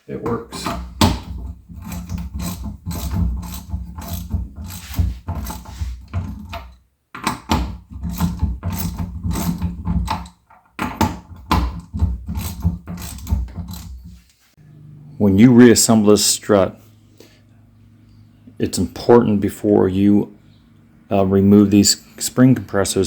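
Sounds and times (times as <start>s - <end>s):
ratchet clicking: 1.2s - 5.8s, 6.4s - 11.1s, 11.7s - 14.0s
low steady hum: 11.0s - 23.0s.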